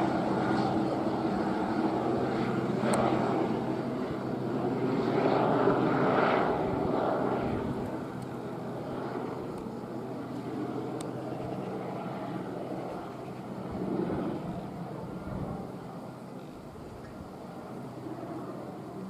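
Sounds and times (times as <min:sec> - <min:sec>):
helicopter turbine and rotor: 0:00.0 - 0:19.0.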